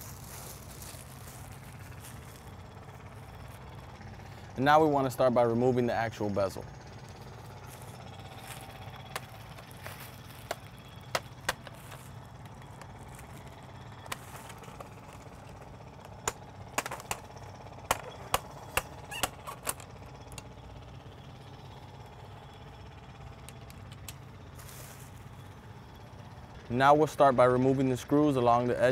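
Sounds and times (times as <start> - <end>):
steady low hum: 0.0 - 28.9
plastic clips snapping: 9.0 - 13.2, 14.0 - 20.4.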